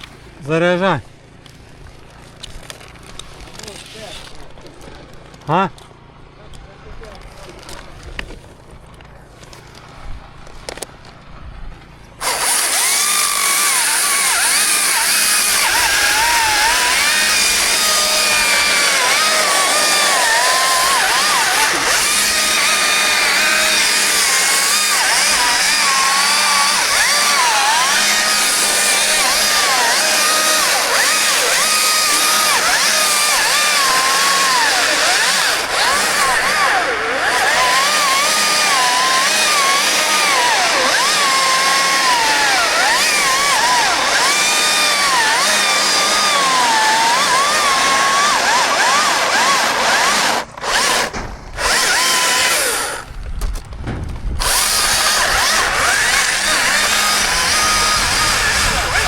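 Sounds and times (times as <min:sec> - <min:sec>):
chainsaw cutting wood: 0:12.1 - 0:59.0.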